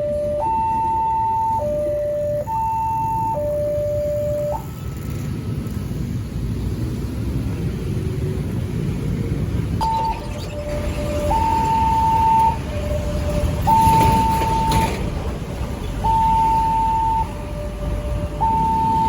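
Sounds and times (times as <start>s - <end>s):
two-tone level crossing alarm: 0.0s - 5.1s, 9.8s - 15.1s, 16.0s - 19.0s
low traffic rumble: 0.0s - 19.0s.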